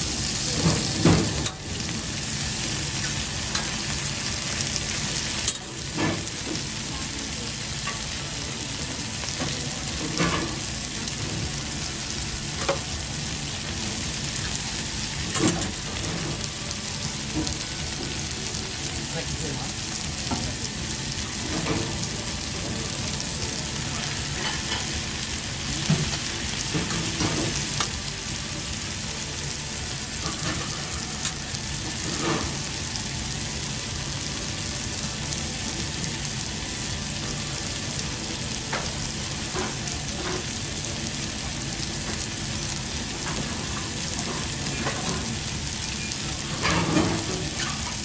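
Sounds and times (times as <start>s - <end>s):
food sizzling on a griddle: 0.0s - 48.0s.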